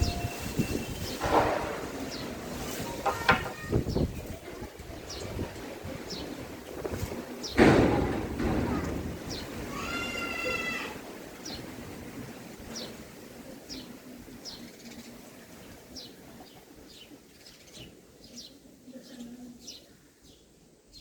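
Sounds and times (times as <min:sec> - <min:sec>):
small birds chirping: 0:02.0 - 0:07.7, 0:13.6 - 0:21.0.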